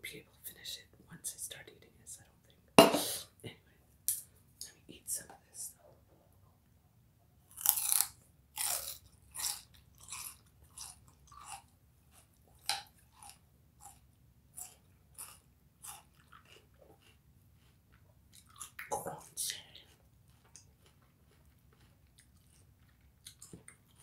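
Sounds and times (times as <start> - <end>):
person crunching and chewing: 7.5 - 24.0.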